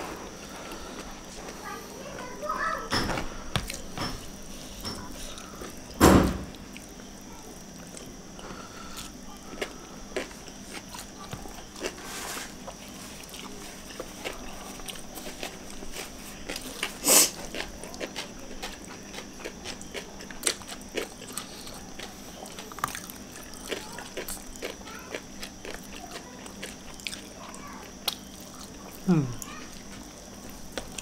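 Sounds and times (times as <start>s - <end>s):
chewing and lip smacks: 12.7s - 31.0s.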